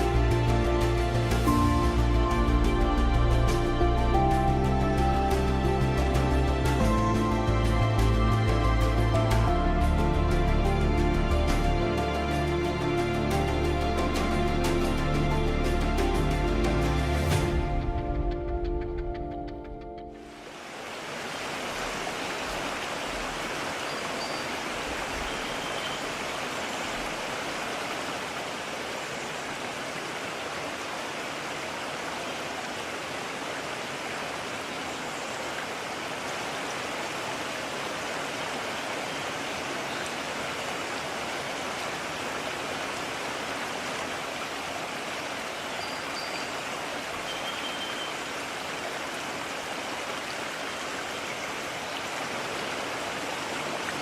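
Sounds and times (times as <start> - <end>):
stream flowing: 0.0 - 54.0
faint high chirps: 47.2 - 48.2.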